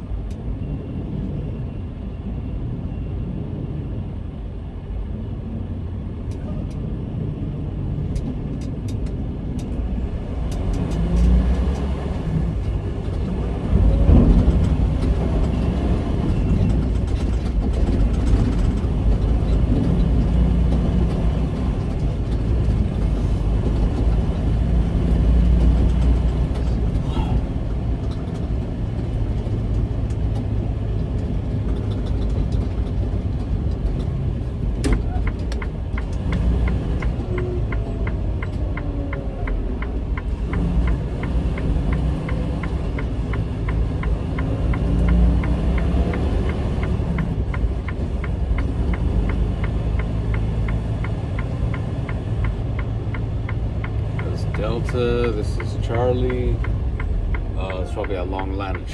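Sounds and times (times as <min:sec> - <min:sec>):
truck diesel engine rumbling: 0:06.2 - 0:58.9
quick ticks: 0:34.8 - 0:58.9.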